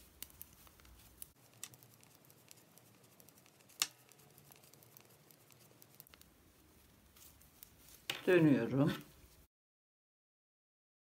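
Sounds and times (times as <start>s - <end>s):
knitting needles clicking: 0.0s - 6.4s.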